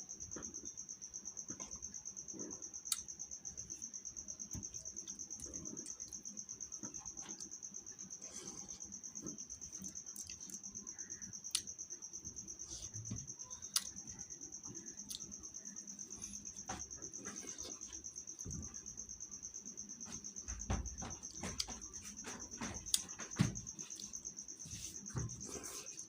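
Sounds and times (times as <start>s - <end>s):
cricket chirping: 0.0s - 26.0s
sharp clicks and knocks: 20.2s - 24.2s.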